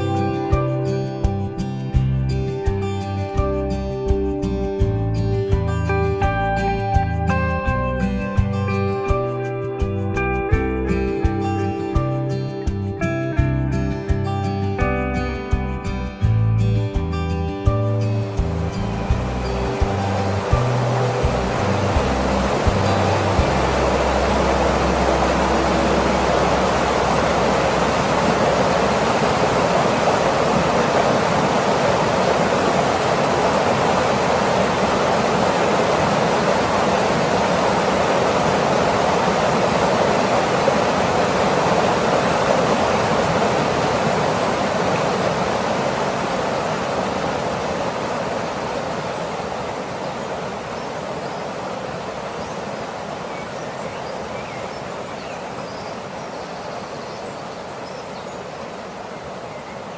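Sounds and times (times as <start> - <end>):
waterfall rushing: 18.0 - 59.9.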